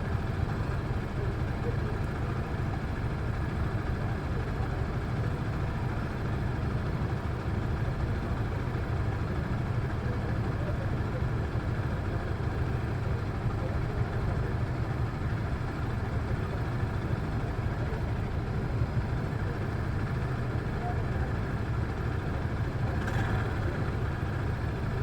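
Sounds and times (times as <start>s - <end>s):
motorcycle engine running: 0.1s - 25.0s.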